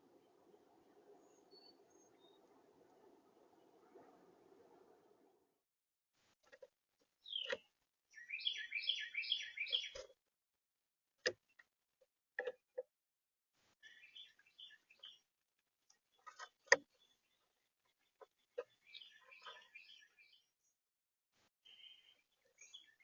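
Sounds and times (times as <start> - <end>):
songbird singing: 0.0 - 4.8, 7.2 - 10.2, 13.8 - 15.3, 15.9 - 20.8, 21.6 - 23.0.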